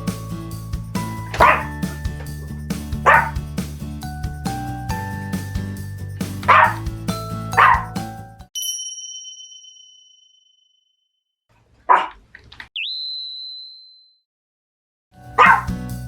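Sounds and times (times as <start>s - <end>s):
background music: 0.0s - 8.5s, 15.2s - 16.0s
dog barking: 1.4s - 1.7s, 3.1s - 3.4s, 6.5s - 6.8s, 7.6s - 7.9s, 11.9s - 12.2s, 15.4s - 15.7s
bright chime: 4.0s - 10.7s.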